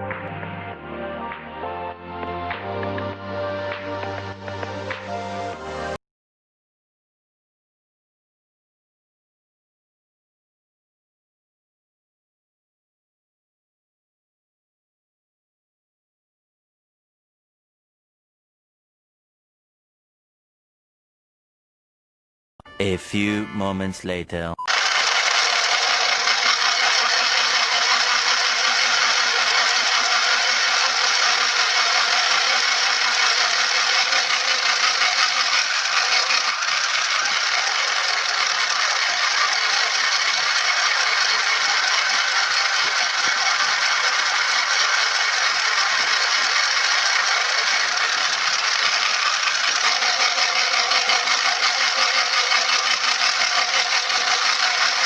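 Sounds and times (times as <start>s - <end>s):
sewing machine running: 24.7s - 55.0s.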